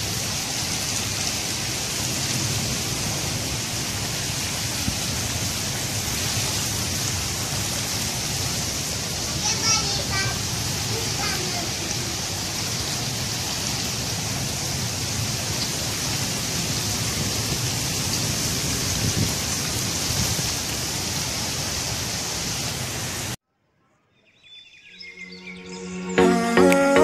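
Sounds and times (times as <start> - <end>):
steady rain falling: 0.0 - 23.4
music: 25.0 - 27.0.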